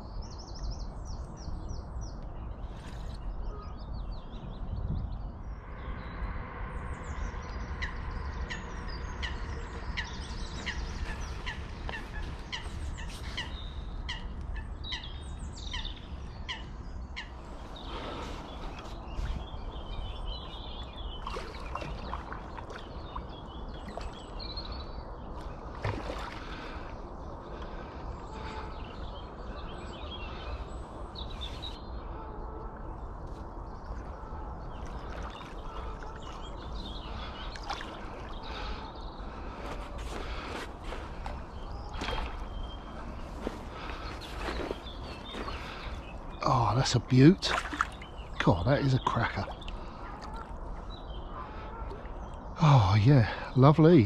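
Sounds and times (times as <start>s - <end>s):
small birds chirping: 0.0s - 54.0s
low rumble: 5.0s - 12.0s.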